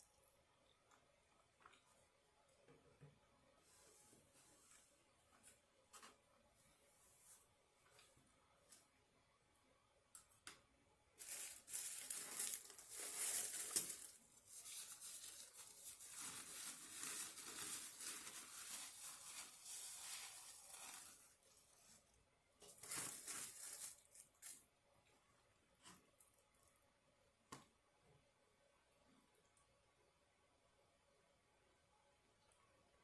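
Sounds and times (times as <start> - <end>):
packaging crinkled and torn: 11.2 - 21.4, 22.6 - 24.6.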